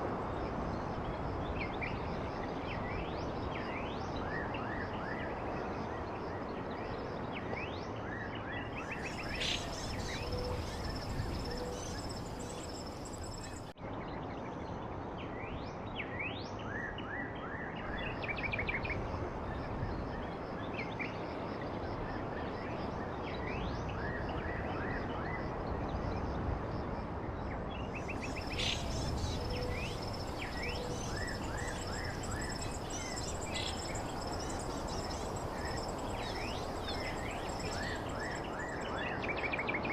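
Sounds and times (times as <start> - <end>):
small birds chirping: 8.8 - 13.7, 27.8 - 38.9
steady background hiss: 8.8 - 13.8, 25.0 - 39.9.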